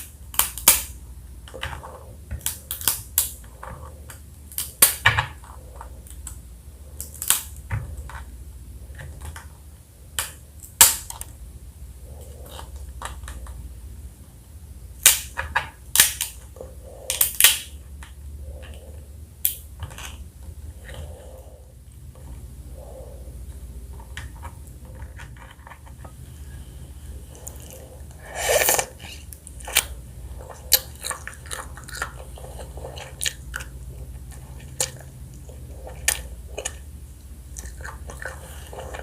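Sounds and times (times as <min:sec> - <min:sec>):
soft chewing: 0:19.8 - 0:39.0.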